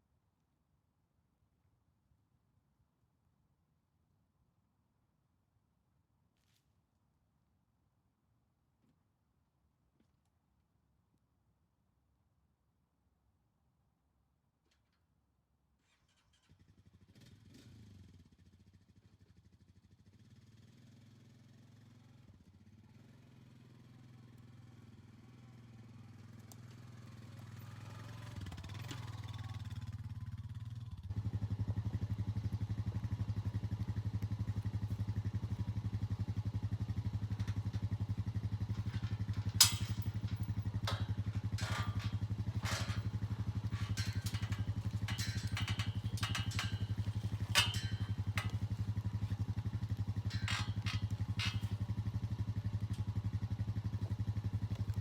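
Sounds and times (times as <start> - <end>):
engine idling: 27.2 - 55.0
sharp clattering knocks: 38.7 - 48.9.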